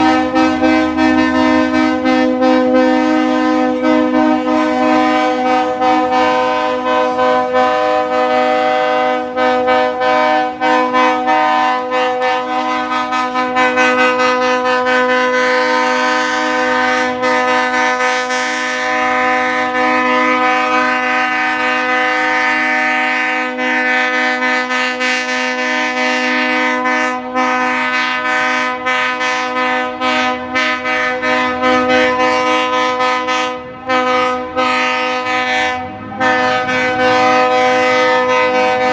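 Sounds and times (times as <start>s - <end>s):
locomotive air horn: 0.0s - 38.9s.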